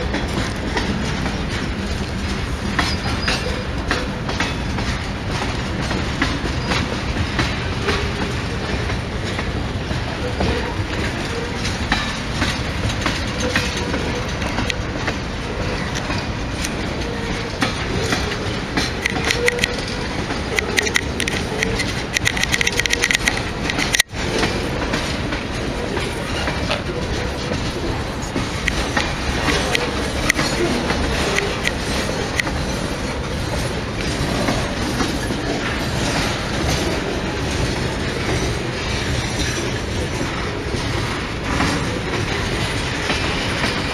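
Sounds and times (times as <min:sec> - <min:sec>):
train rumbling past: 0:00.0 - 0:43.9
wheels clacking over rail joints: 0:00.0 - 0:43.9
rapid clicking with high ringing: 0:18.0 - 0:24.1.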